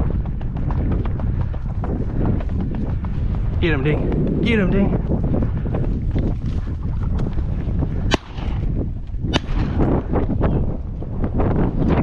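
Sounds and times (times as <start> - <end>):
wind rumble on microphone: 0.0 - 12.0
shotgun shots: 8.1 - 8.7, 9.3 - 9.8.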